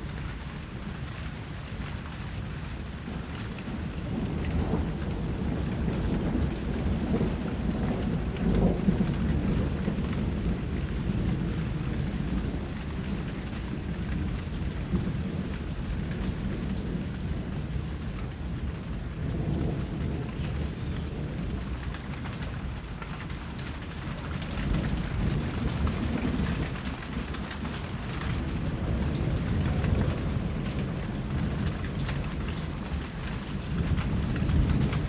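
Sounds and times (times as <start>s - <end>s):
steady rain: 0.0s - 35.0s
distant thunder rumbles: 2.8s - 35.0s.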